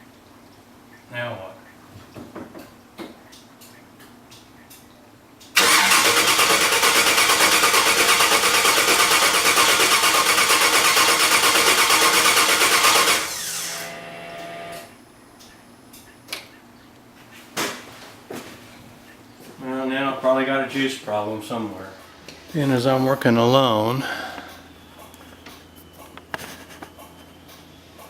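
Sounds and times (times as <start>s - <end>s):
starter cranking engine: 5.6s - 13.9s.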